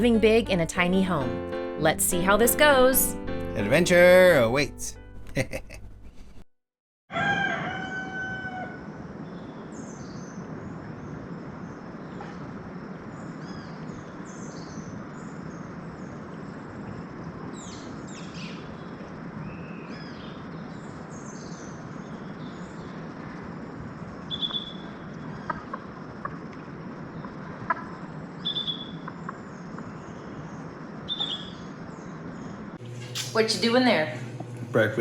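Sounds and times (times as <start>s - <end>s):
birds chirping and calling: 28.4s - 30.5s, 31.1s - 31.7s.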